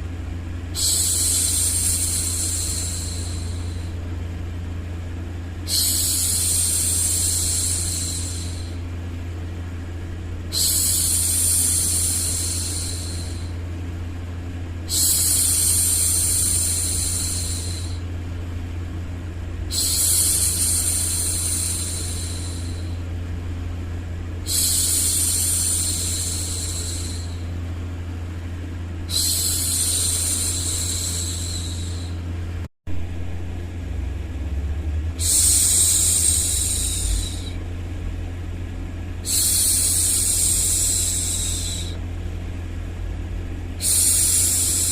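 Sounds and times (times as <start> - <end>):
steady low hum: 0.0 - 44.9
woman shushing: 0.8 - 4.0, 5.7 - 8.8, 10.5 - 13.5, 29.1 - 32.2, 35.2 - 37.6, 39.2 - 42.0.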